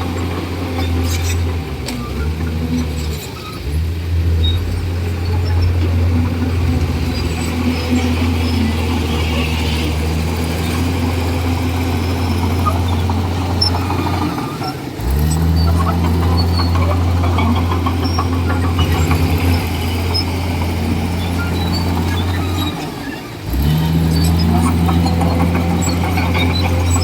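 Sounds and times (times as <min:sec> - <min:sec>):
bulldozer diesel engine running: 0:00.0 - 0:27.0
track squeal and clatter: 0:00.0 - 0:27.0.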